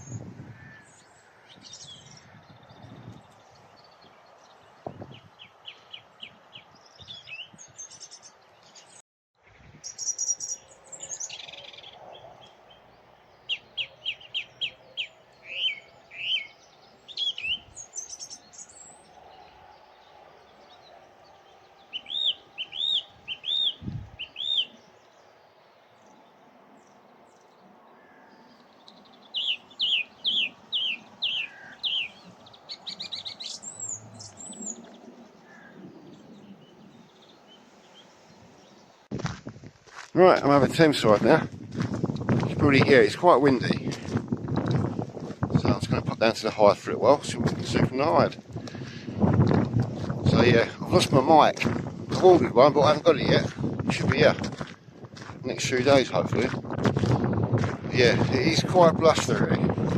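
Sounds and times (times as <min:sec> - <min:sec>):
faint wind: 0:00.0 - 0:59.9
traffic noise: 0:10.5 - 0:39.1
thrush singing: 0:29.1 - 0:38.9.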